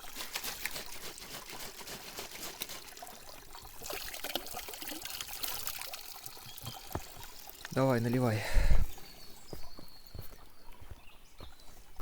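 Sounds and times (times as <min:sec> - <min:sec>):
water poured from jar: 0:00.0 - 0:08.1
water trickling: 0:00.0 - 0:10.9.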